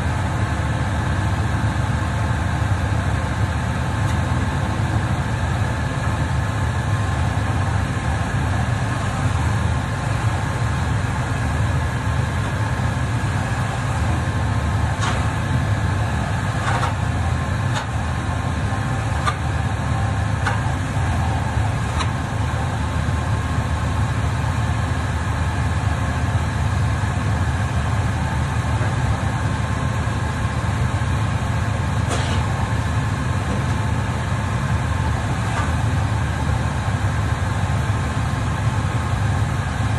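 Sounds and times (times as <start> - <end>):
machine droning: 0.0 - 39.9.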